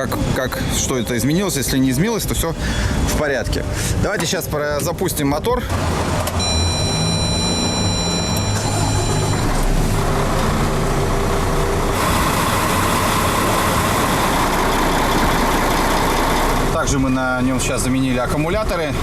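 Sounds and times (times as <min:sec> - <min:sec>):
diesel engine starting and running: 0:00.0 - 0:19.0
high steady electronic tone: 0:06.4 - 0:09.7.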